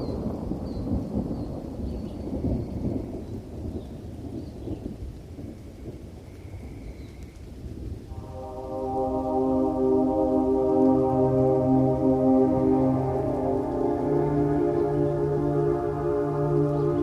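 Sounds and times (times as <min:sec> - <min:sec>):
rain: 0:00.0 - 0:17.0
thunder rolling: 0:08.0 - 0:17.0.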